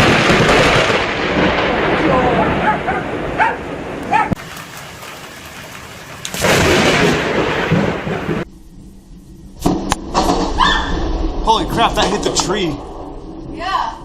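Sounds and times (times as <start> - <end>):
thunder cracks and crashes: 0.0 - 8.5, 9.6 - 14.0
rain hissing: 3.6 - 8.5.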